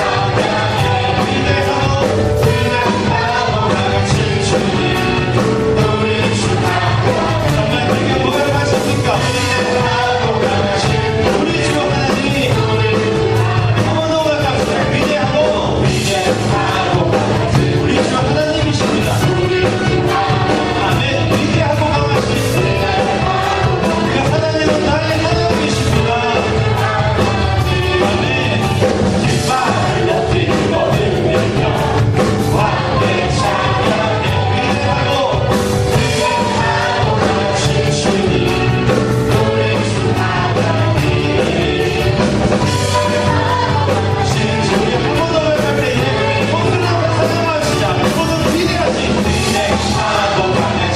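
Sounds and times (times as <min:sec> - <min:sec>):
people singing: 0:00.0 - 0:50.9
praise band playing: 0:00.0 - 0:50.9.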